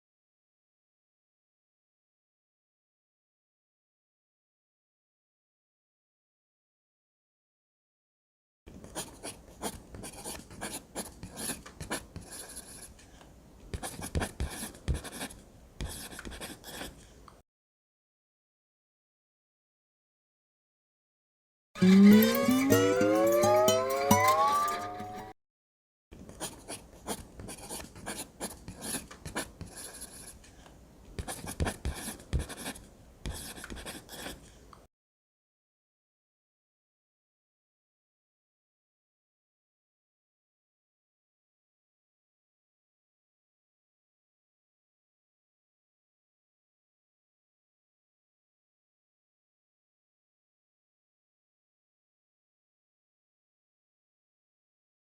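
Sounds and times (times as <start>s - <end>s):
drawing tool scratching paper: 8.9s - 13.0s, 26.4s - 30.4s, 31.2s - 34.4s.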